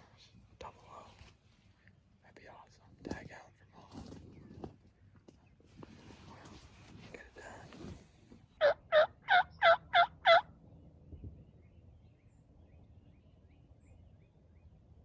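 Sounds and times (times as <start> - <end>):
turkey call hen yelps: 8.6 - 10.5.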